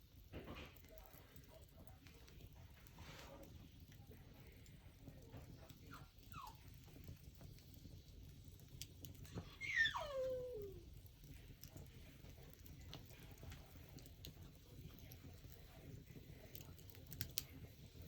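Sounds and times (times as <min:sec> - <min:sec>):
animal whining cry: 0:06.0 - 0:06.6, 0:09.4 - 0:10.9.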